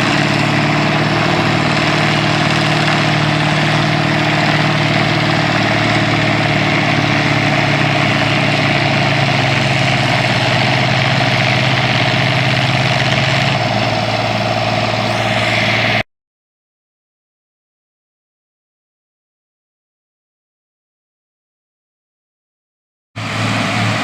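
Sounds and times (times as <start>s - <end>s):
engine idling: 0.0s - 16.0s, 23.2s - 24.0s.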